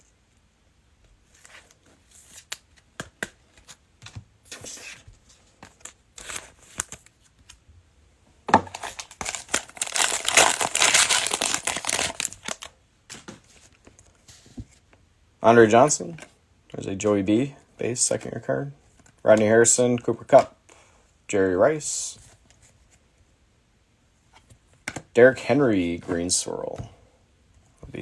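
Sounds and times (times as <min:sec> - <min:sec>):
wrapper clicks and rustles: 0:08.7 - 0:12.7
wrapper crinkling: 0:08.7 - 0:12.7.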